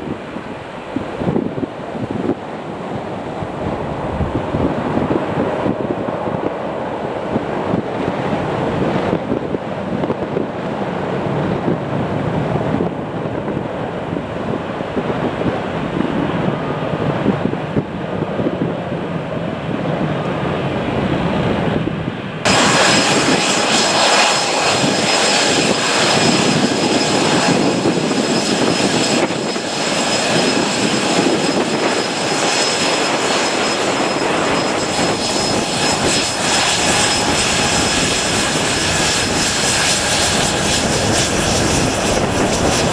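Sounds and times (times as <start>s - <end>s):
jet engines rushing: 0.0s - 42.9s
high engine whine: 19.2s - 42.9s.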